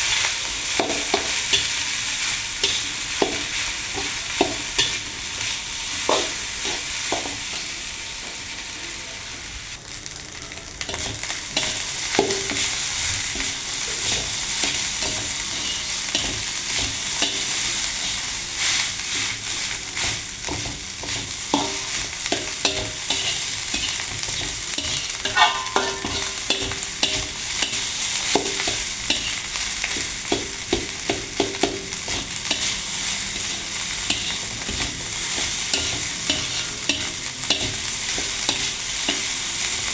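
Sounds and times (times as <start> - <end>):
rice sizzling in a pan: 0.0 - 39.9
spatula scraping a pan: 10.9 - 39.9
spatula clinking against pan: 21.6 - 29.4.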